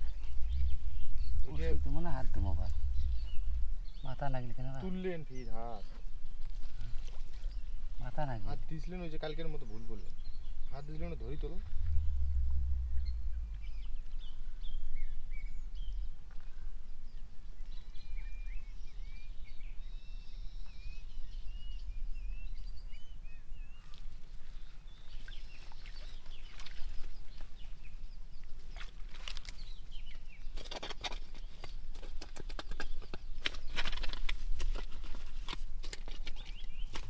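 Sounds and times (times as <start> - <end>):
low rumble: 0.0 - 5.5, 10.0 - 17.3
small birds chirping: 0.0 - 37.0.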